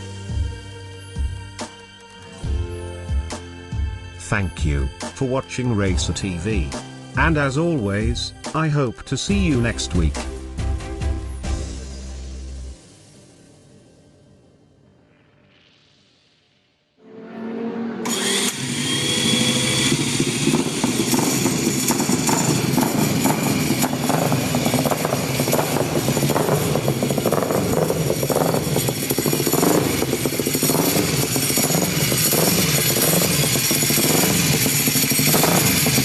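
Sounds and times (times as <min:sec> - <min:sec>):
motorcycle engine starting and revving: 0:17.7 - 0:36.0.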